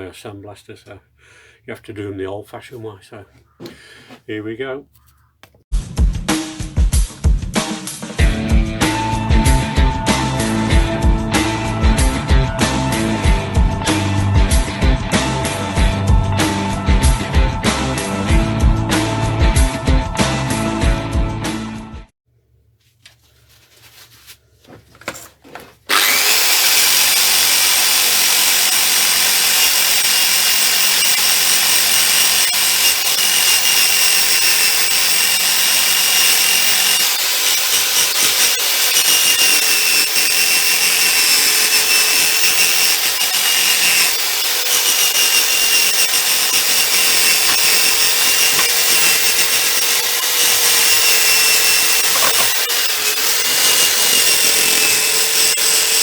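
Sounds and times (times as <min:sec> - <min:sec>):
electric power tool whining: 0:25.9 - 0:56.0.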